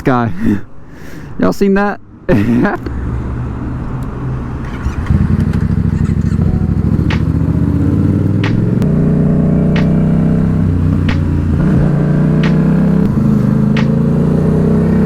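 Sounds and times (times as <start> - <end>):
vehicle engine idling: 3.8 - 15.0.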